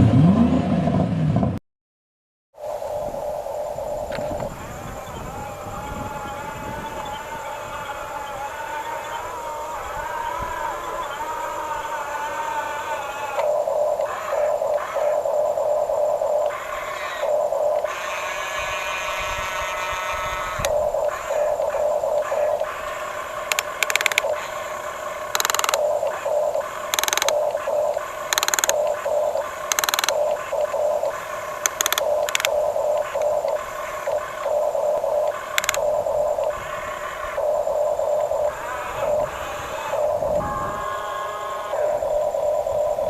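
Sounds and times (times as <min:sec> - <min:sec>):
small gear motors whining: 0:16.5 - 0:34.7, 0:35.5 - 0:35.9
gears and tracks rattling: 0:28.3 - 0:28.9, 0:29.7 - 0:30.2.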